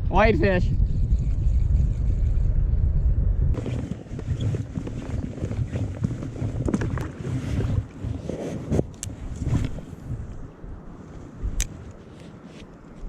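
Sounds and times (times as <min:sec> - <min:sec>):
wind buffeting microphone: 0:00.0 - 0:13.0
small knocks and rustles: 0:03.6 - 0:09.9.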